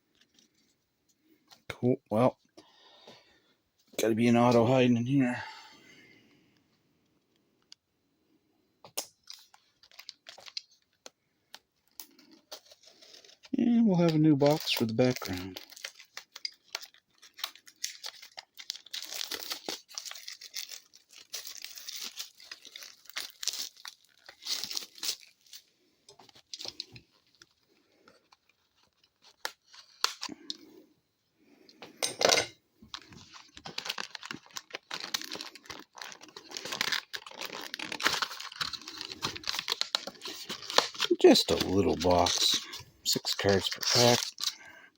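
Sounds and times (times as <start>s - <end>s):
packaging tearing and crinkling: 9.0s - 11.0s, 11.9s - 30.6s, 32.9s - 44.7s.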